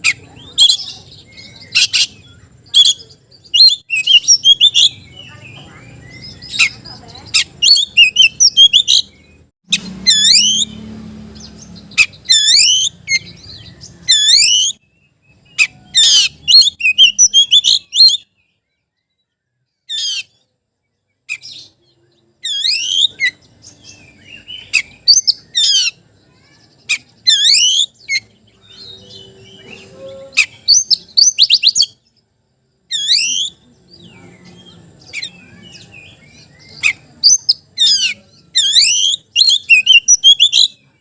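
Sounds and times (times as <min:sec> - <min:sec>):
bird whistled song: 0:00.0 - 0:32.3, 0:32.9 - 0:41.0.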